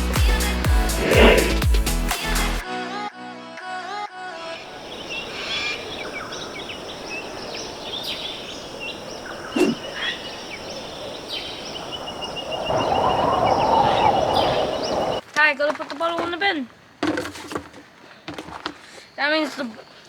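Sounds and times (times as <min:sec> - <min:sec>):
birds chirping and trilling: 0:00.8 - 0:01.7, 0:04.6 - 0:15.2
loud rushing noise: 0:00.9 - 0:01.7.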